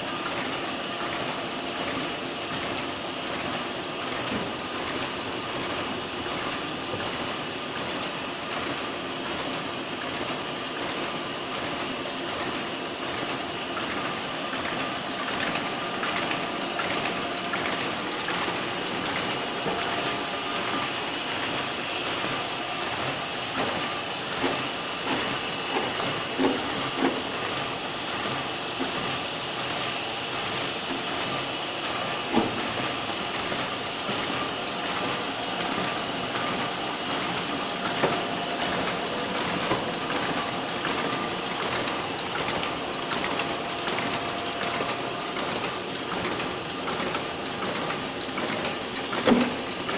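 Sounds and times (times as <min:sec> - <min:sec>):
whirr of machine rollers: 0:00.0 - 0:49.9.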